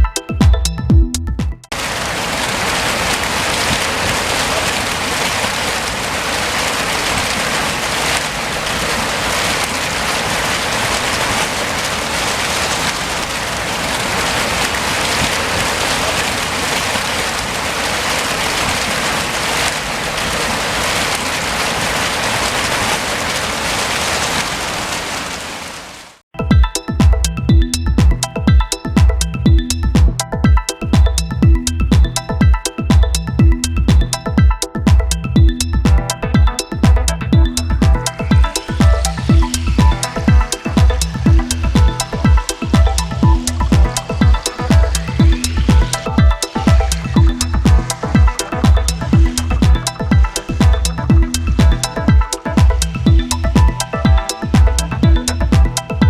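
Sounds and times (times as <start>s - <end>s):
fountain water splashing: 1.7s - 26.2s, 35.9s - 56.0s.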